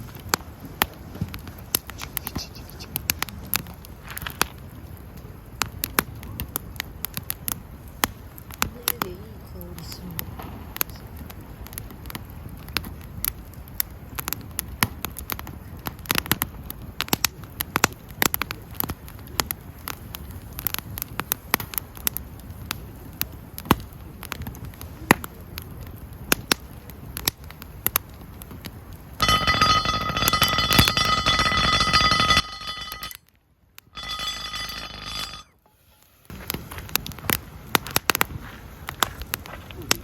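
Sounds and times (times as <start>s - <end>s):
burning wood popping: 0.0s - 40.0s
campfire crackling: 0.0s - 40.0s
steady ringing tone: 29.2s - 33.2s, 34.0s - 35.6s.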